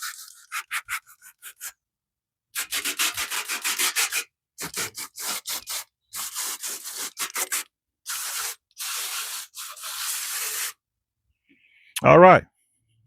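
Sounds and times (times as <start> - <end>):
stiff brush scrubbing: 2.6 - 10.8.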